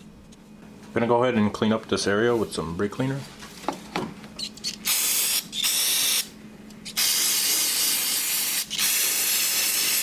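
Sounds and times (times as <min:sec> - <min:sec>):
aerosol can spraying: 0:04.9 - 0:06.3, 0:06.9 - 0:10.0.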